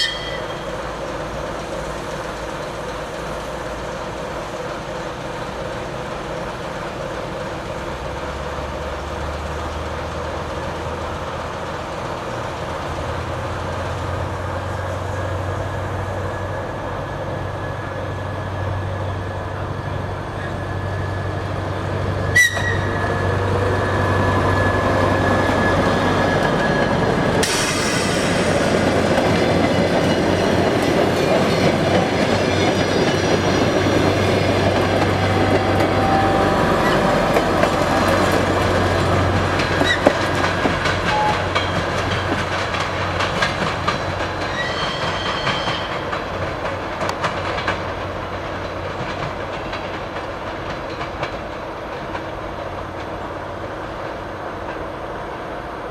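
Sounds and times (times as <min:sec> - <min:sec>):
locomotive engine hum: 0:00.0 - 0:55.9
wheel squeals: 0:22.2 - 0:28.6, 0:39.6 - 0:42.4, 0:43.9 - 0:46.1
wheels clacking over rail joints: 0:25.1 - 0:53.3.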